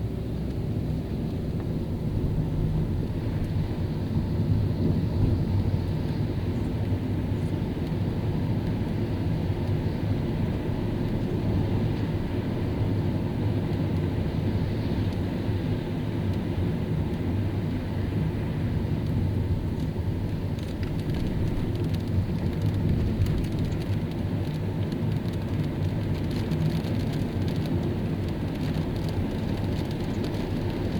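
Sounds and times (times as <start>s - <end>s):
car driving on wet road: 0.0s - 30.9s.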